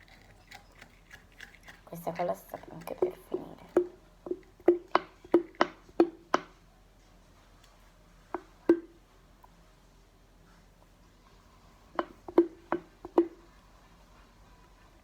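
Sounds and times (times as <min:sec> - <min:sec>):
plastic bottle knocking on container: 0:03.0 - 0:06.5, 0:08.4 - 0:09.0, 0:12.0 - 0:13.4.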